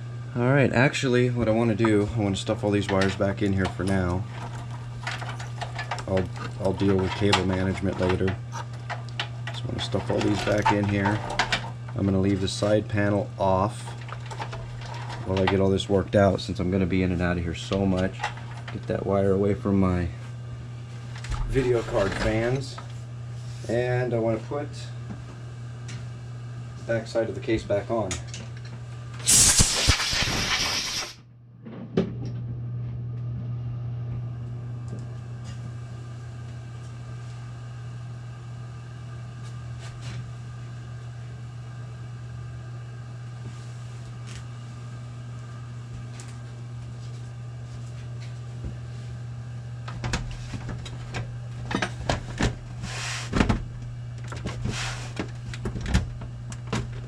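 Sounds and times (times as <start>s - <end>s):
steady low hum: 0.0s - 57.0s
loud burst of noise: 29.2s - 31.2s.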